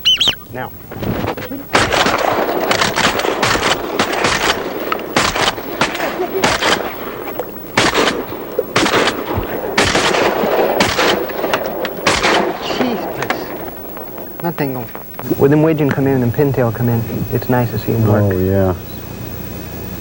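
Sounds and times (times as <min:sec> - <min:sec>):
shotguns firing: 0:00.9 - 0:16.6.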